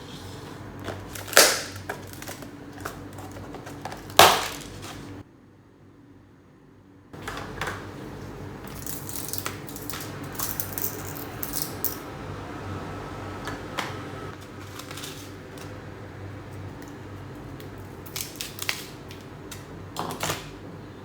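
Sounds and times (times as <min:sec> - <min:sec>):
objects clicking and tapping: 0:08.6 - 0:12.0.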